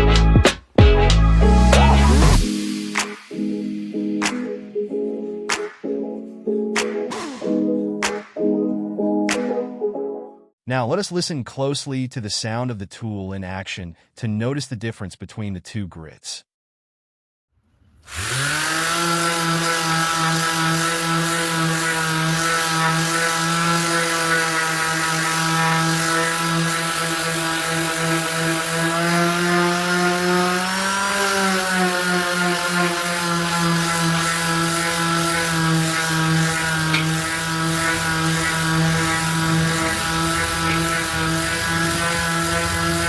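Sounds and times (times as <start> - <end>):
orbital sander sanding wood: 6.8 - 7.8, 18.0 - 43.0.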